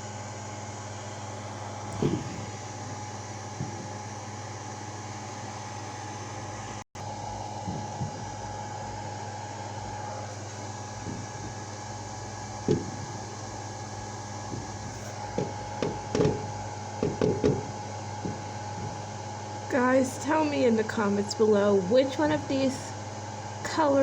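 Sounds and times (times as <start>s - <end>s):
steady hum and hiss: 0.0s - 24.0s
distant fireworks booming: 10.2s - 19.2s.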